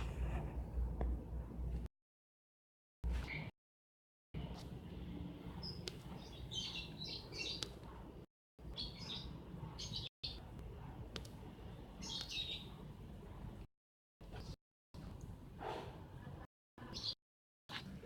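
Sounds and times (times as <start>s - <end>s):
small birds chirping: 3.1s - 3.5s, 4.5s - 10.5s, 11.8s - 12.9s, 16.8s - 17.2s.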